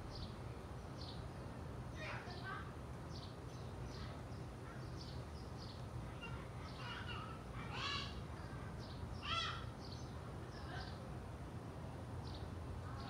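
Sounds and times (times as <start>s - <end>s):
birds chirping: 0.0s - 11.1s.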